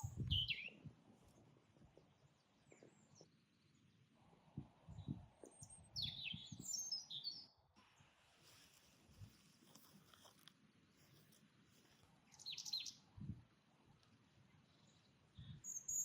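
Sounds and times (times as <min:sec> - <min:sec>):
bird chirps: 0:00.0 - 0:00.8, 0:05.0 - 0:07.5, 0:12.3 - 0:13.0, 0:14.7 - 0:16.0.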